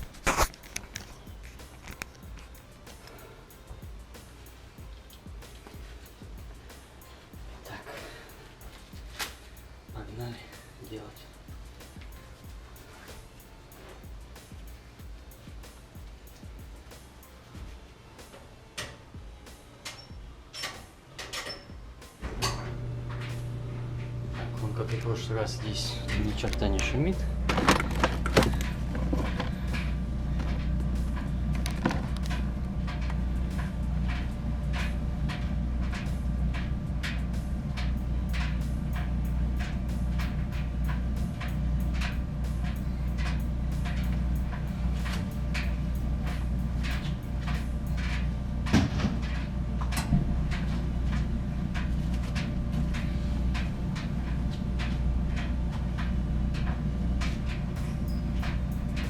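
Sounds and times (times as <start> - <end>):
gas dryer running: 0.0 - 59.0
light regular ticking: 23.2 - 59.0.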